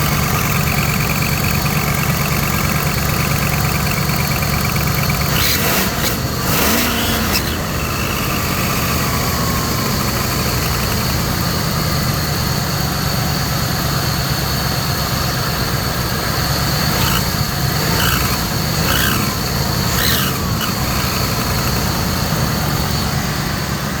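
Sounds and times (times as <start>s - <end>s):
exhaust leak shrieks: 0.0s - 11.9s, 16.4s - 23.5s
car engine running: 0.0s - 24.0s
exhaust leak whine: 0.0s - 24.0s.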